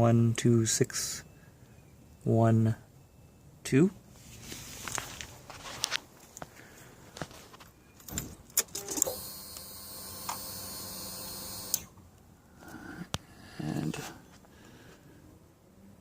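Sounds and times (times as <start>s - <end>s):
fuel pump motor whirring: 8.8s - 12.0s.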